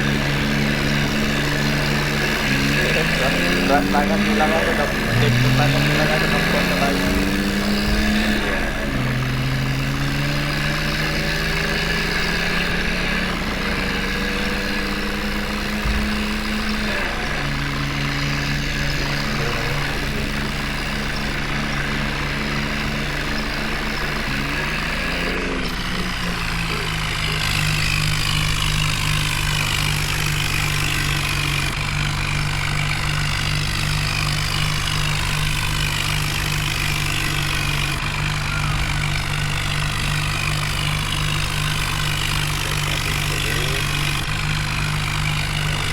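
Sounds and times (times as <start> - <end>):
heavy diesel engine running: 0.0 - 45.9.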